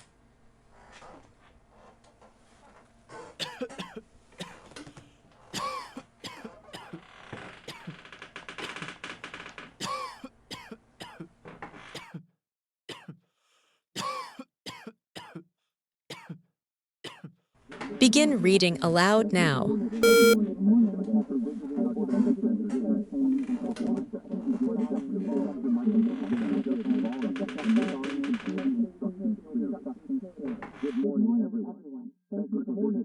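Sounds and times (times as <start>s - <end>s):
coughs and throat-clearing: 3.4s - 4.9s, 5.5s - 7.0s, 7.7s - 8.0s, 9.8s - 11.3s, 12.0s - 13.2s, 14.0s - 15.5s, 16.1s - 17.4s.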